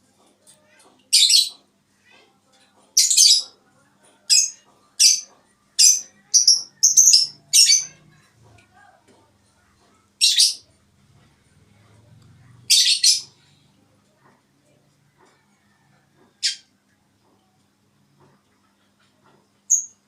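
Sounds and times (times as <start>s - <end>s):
small bird chirping: 4.2s - 8.3s, 12.7s - 13.4s, 19.7s - 20.0s.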